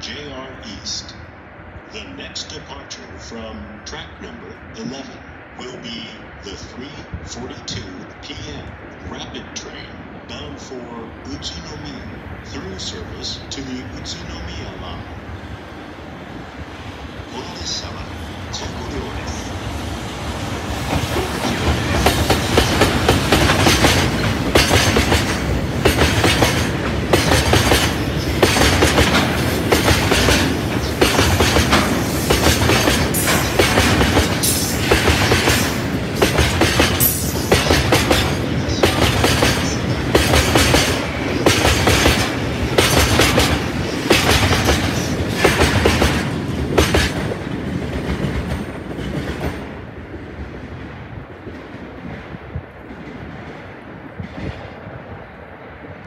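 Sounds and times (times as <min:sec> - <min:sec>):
train wheels clattering over rail joints: 0:20.8 - 0:49.8.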